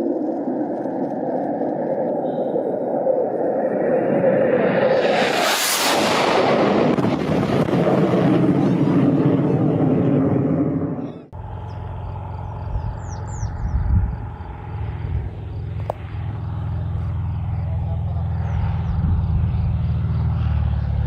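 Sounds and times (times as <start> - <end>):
dense rushing noise: 4.4 - 8.6
steady low engine hum: 11.1 - 21.0.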